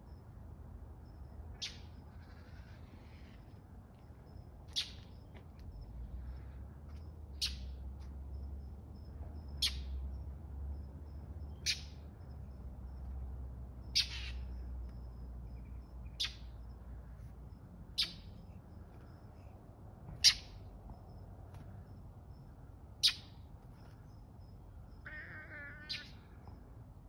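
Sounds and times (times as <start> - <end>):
bird alarm calls: 4.7 - 5.0, 11.5 - 12.0, 13.8 - 14.7, 15.6 - 16.6, 17.9 - 18.4, 20.2 - 20.7, 23.0 - 23.4, 25.1 - 26.3
cat meowing: 25.0 - 26.3.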